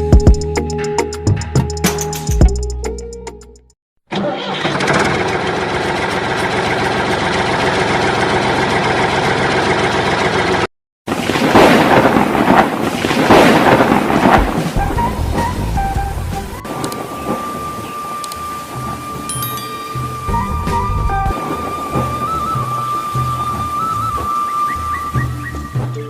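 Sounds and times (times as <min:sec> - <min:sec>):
engine hum: 0:04.2 - 0:10.7
crackling thunder: 0:11.1 - 0:19.2
rain: 0:11.1 - 0:26.0.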